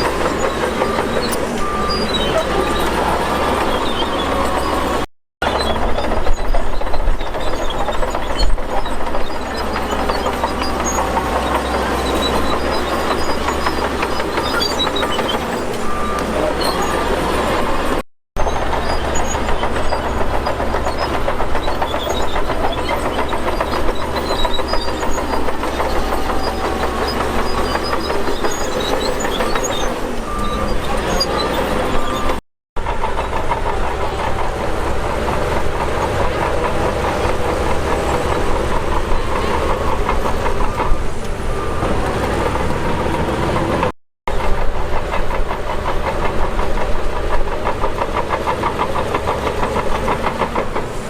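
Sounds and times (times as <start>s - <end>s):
heavy diesel machinery running: 0.0s - 51.0s
continuous metallic clatter: 5.4s - 17.1s, 18.4s - 51.0s.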